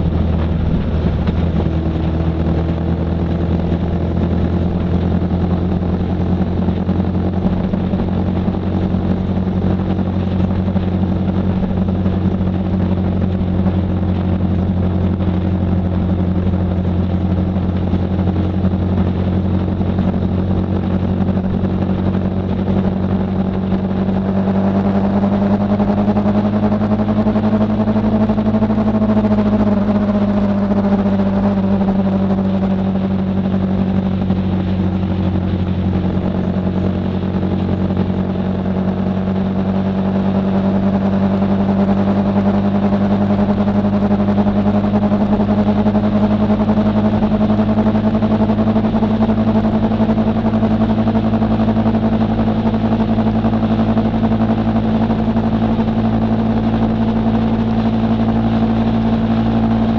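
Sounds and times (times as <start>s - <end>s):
motorcycle engine cruising: 0.0s - 59.9s
road and wind noise: 0.0s - 59.9s.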